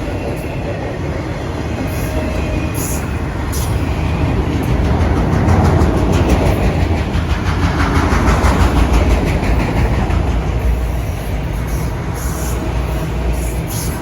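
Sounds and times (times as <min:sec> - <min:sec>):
freight train wheels clickety-clack: 0:00.0 - 0:14.0.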